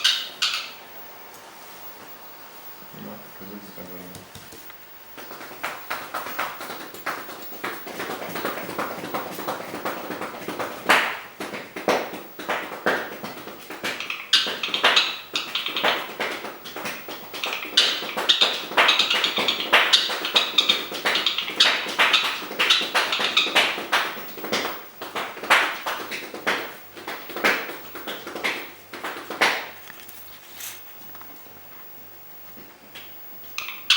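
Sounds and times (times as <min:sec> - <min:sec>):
parrot drumming taps: 0:04.1 - 0:30.0.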